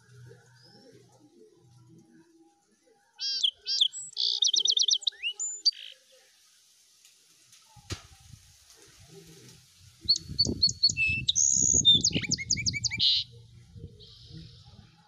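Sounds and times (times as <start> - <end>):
songbird singing trills: 3.1 - 6.1, 10.0 - 15.0.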